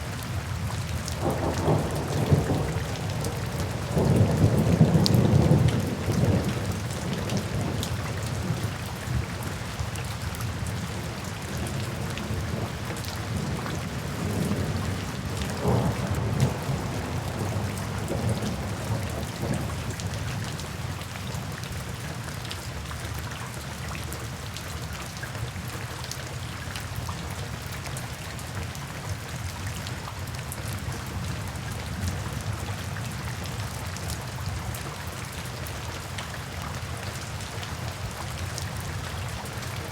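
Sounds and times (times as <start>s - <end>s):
steady rain falling: 0.0s - 39.9s
rolling thunder: 1.2s - 8.5s, 13.3s - 20.0s.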